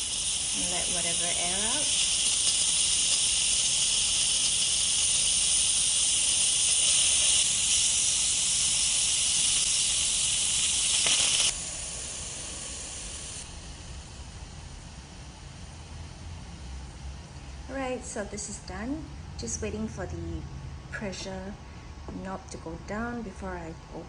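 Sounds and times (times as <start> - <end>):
steam hissing from valve: 0.0 - 16.7.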